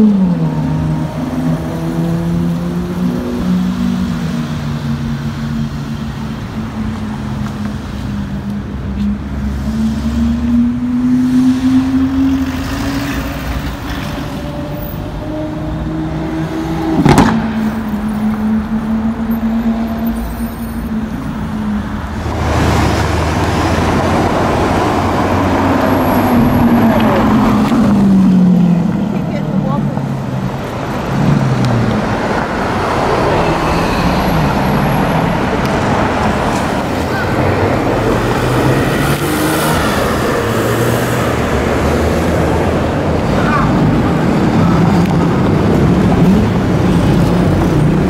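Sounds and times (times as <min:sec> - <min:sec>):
car engines in traffic: 0:00.0 - 0:48.0
sharp crack: 0:17.0 - 0:17.7.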